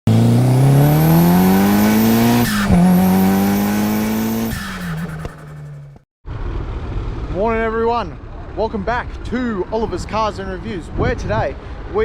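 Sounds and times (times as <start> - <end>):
car engine accelerating: 0.1 - 8.6.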